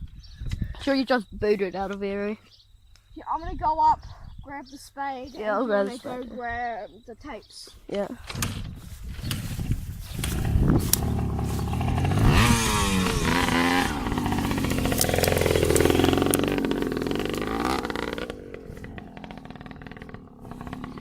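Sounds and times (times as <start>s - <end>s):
dirt bike engine revving: 10.1s - 21.0s.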